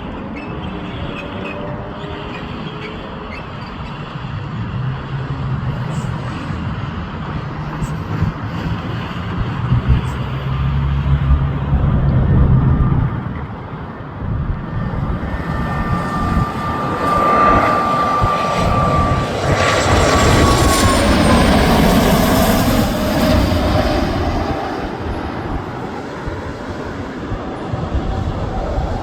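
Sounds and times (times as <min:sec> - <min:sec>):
airplane passing low overhead: 0:00.0 - 0:29.0
high engine whine: 0:00.0 - 0:29.0.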